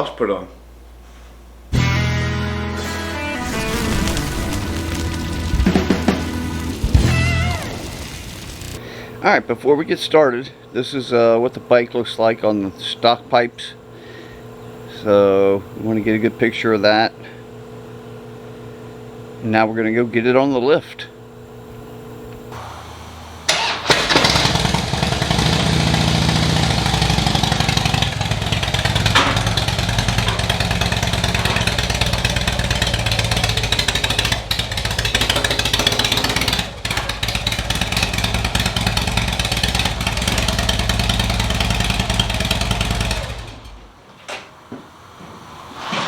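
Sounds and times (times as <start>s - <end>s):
motorcycle engine running: 3.7s - 8.8s, 23.9s - 43.8s.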